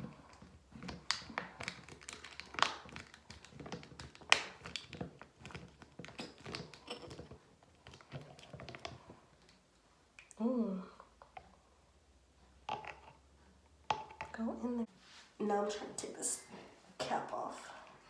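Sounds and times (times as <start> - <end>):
plastic bottle clicks and taps: 0.4 - 7.0, 12.6 - 13.2, 13.9 - 14.4.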